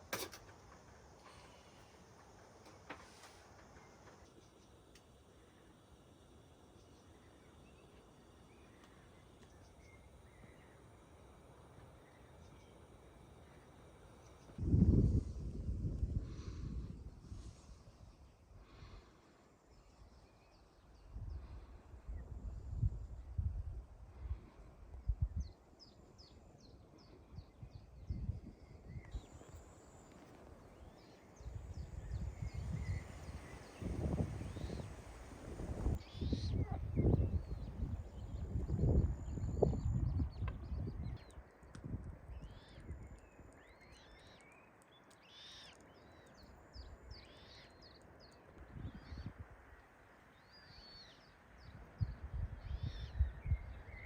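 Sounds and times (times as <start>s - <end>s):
low steady hiss: 0.0s - 54.0s
songbird calling: 28.6s - 41.7s, 42.3s - 54.0s.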